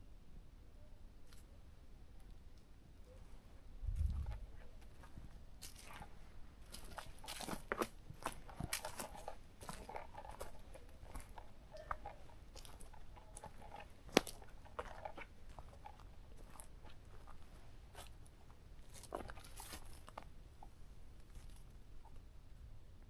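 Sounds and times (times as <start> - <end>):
footsteps crunching on forest floor: 3.9 - 18.3, 18.9 - 20.3.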